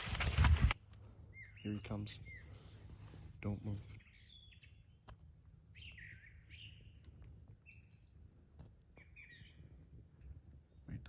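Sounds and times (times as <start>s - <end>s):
faint songbirds chirping: 0.8s - 11.0s.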